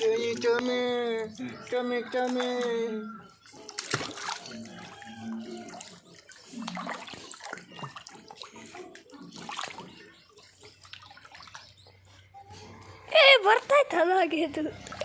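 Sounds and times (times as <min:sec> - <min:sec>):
water splashing as dog swims: 0:03.5 - 0:10.0.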